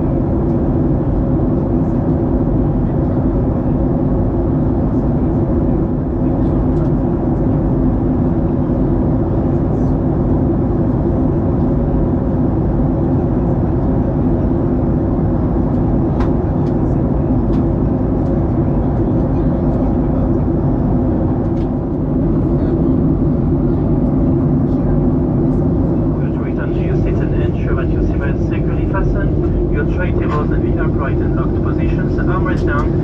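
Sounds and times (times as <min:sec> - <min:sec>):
jet engine drone: 0:00.0 - 0:33.0
low steady hum: 0:00.0 - 0:33.0.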